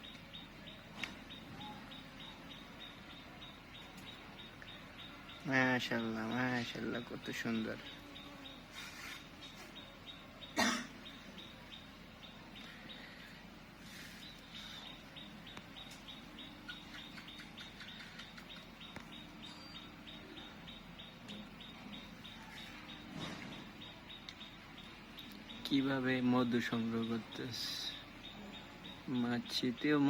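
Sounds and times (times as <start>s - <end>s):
bird chirping: 0.0s - 30.0s
cough-like sound: 10.6s - 11.0s.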